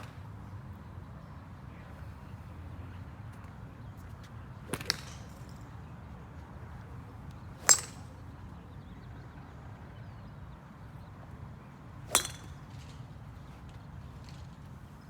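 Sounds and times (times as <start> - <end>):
golf club striking ball: 7.6 - 8.1, 12.1 - 12.6.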